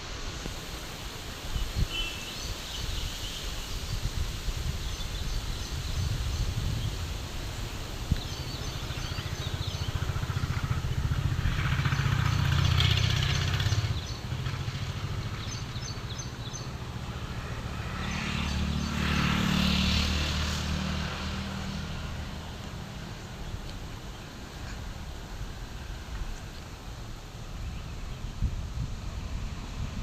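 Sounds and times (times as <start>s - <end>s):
vehicle engine rumbling: 5.8s - 30.0s.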